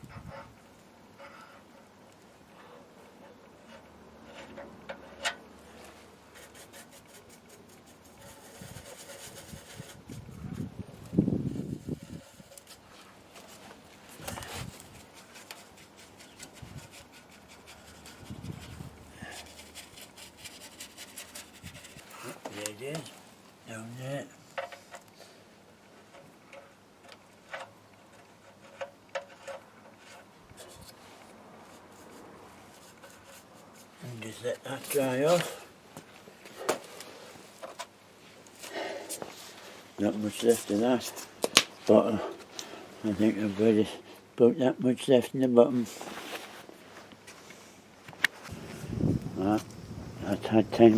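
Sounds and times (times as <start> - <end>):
brush rubbing on metal: 3.6 - 10.7, 11.4 - 22.6, 28.5 - 35.6.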